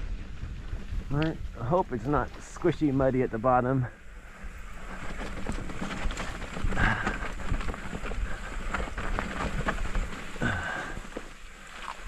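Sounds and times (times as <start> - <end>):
wind rushing on microphone: 0.0 - 11.0
tyre noise on dirt: 0.0 - 12.0
bike frame rattling and knocking: 4.8 - 11.4.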